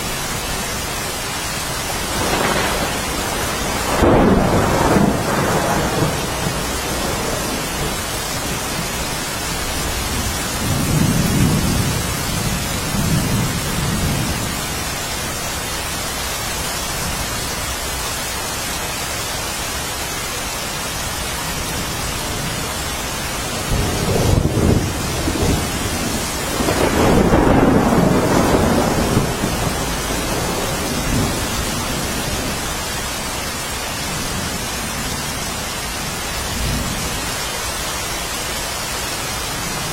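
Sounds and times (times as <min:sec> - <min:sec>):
heavy rain: 0:00.0 - 0:39.9
rolling thunder: 0:01.9 - 0:14.6, 0:23.4 - 0:33.2.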